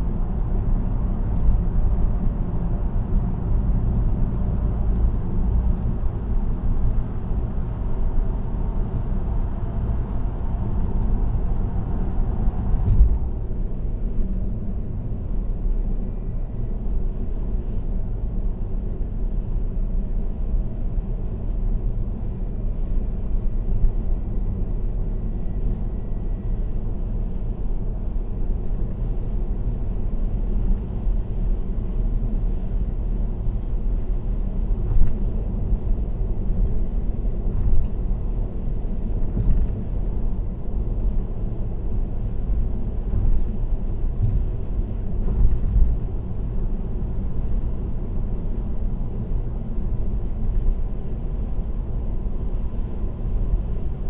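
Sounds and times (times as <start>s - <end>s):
tyre and road noise: 0.0s - 54.0s
faint ticks: 34.8s - 38.1s, 43.0s - 43.4s, 44.2s - 44.6s, 45.2s - 50.8s.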